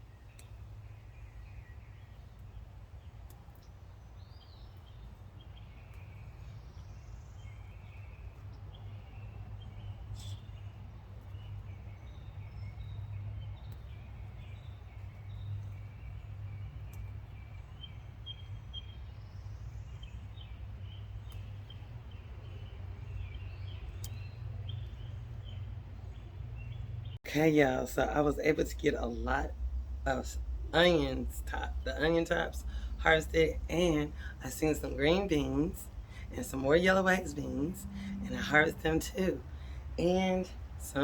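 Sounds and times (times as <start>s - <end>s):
small birds chirping: 0.0s - 41.0s
steady low rumble: 8.3s - 41.0s.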